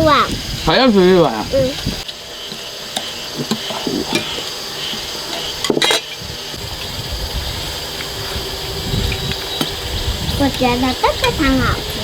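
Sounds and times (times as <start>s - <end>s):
dishes clattering: 3.0s - 4.5s, 5.3s - 6.2s.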